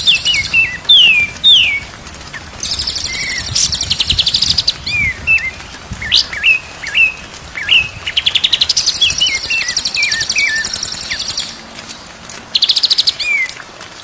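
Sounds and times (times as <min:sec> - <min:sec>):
songbird whistled notes: 0:02.6 - 0:11.6.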